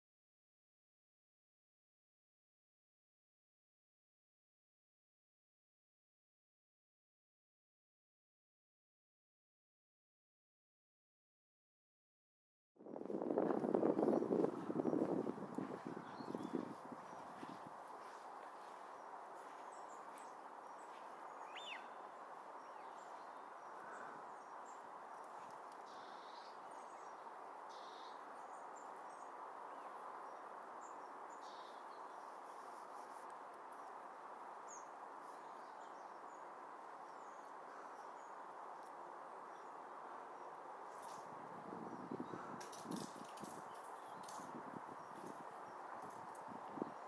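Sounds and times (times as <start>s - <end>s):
faint outdoor hiss: 13.1s - 47.0s
distant bird chirps: 15.7s - 32.7s.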